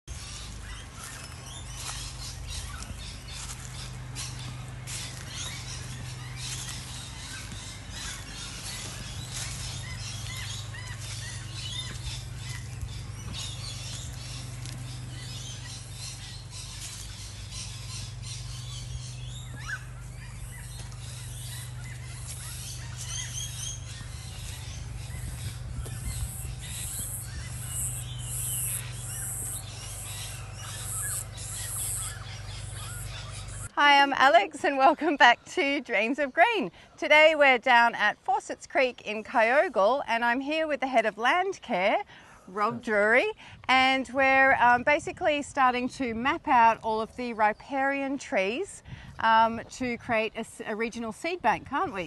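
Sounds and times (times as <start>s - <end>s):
steady low hum: 0.1s - 37.3s
birds chirping and calling: 0.1s - 52.0s.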